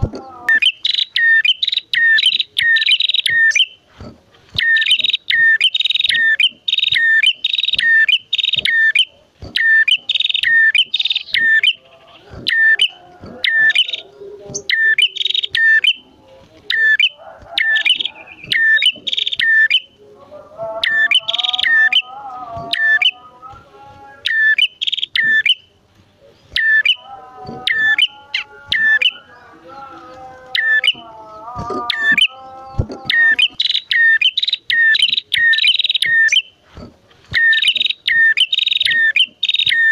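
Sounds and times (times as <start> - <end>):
wavering bird chatter: 0.0 - 20.0, 20.7 - 23.3, 24.2 - 39.9
songbird chip notes: 4.6 - 20.1, 20.7 - 36.6.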